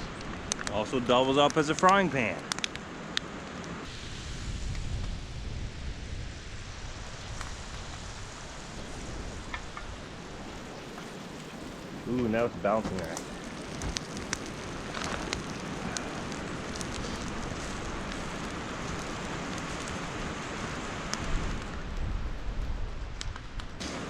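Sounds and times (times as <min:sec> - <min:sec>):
bacon sizzling with pops: 0:09.3 - 0:21.8.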